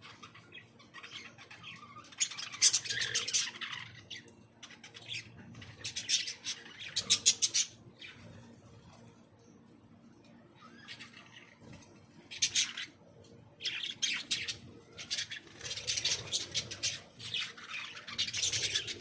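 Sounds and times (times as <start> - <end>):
birds chattering harshly: 0.0 - 19.0.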